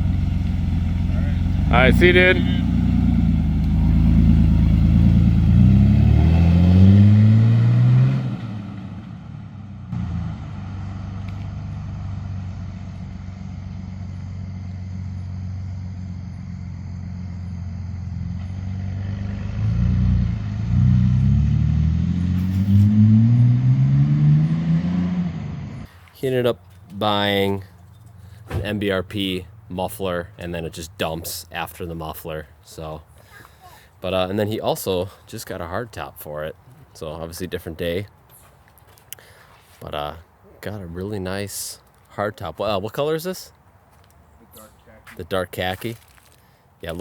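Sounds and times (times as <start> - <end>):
loud raspy car engine revving: 0.0 - 25.9.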